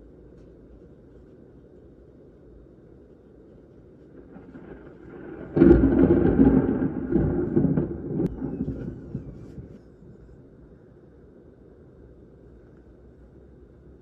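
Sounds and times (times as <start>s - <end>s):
thunderclap crack and rumble: 4.0s - 10.6s.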